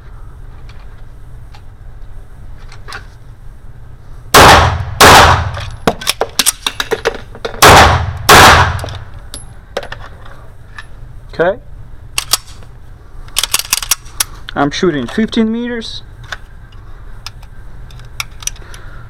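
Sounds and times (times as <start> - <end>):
pistol shots: 4.4 - 5.6, 7.6 - 9.0
small metallic clicks and clinks: 16.3 - 18.8.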